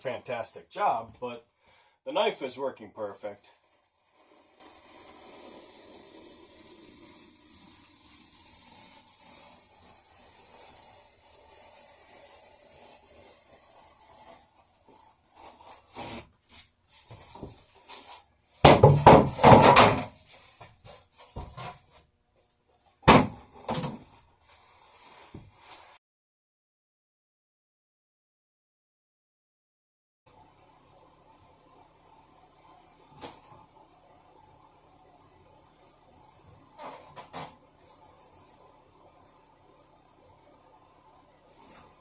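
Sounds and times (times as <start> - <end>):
bread knife sawing foam: 3.6 - 16.3.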